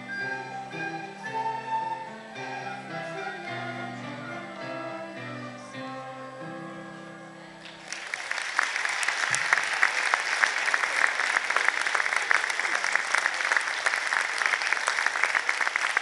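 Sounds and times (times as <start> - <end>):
flute choir playing: 0.0 - 7.6
audience applause: 7.6 - 16.0.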